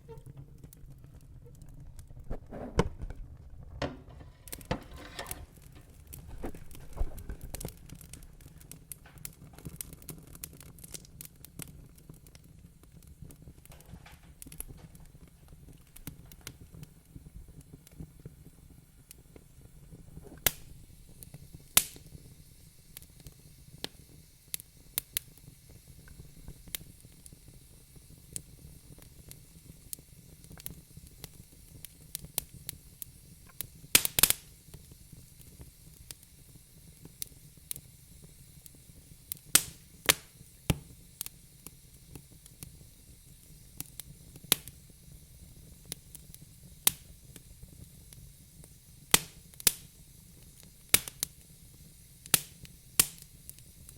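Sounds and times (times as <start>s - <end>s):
fire crackling: 0.0s - 53.9s.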